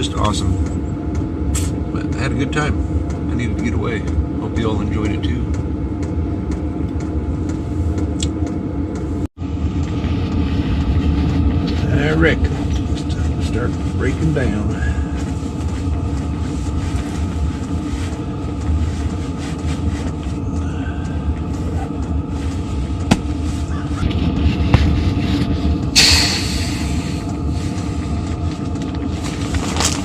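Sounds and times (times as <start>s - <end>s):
low mechanical rumble and hum: 0.0s - 30.0s.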